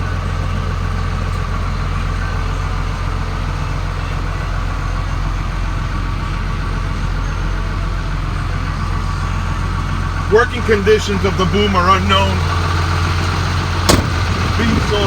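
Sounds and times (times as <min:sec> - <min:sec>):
air-conditioning fan blowing: 0:00.0 - 0:15.0
diesel truck engine idling: 0:00.0 - 0:15.0.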